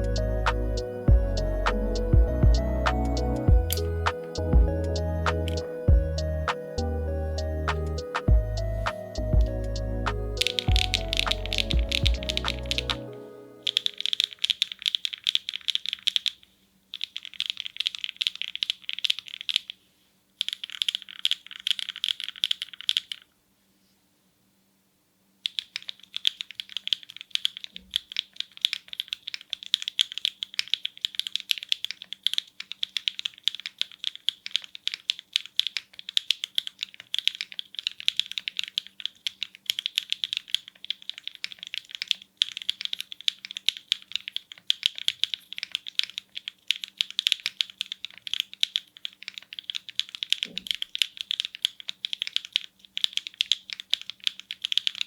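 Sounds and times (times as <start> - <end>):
deeper keystroke thuds: 0.0 - 6.6, 7.7 - 12.9
mechanical keyboard typing: 0.0 - 6.8, 7.7 - 19.8, 20.4 - 23.3, 25.4 - 55.0.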